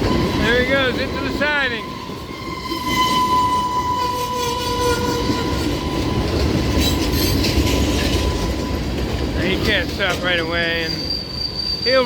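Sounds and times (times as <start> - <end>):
freight train rumbling: 0.0 - 12.0
rail clacks: 0.0 - 12.0
high-pitched wheel squeal: 1.6 - 8.9, 10.4 - 12.0.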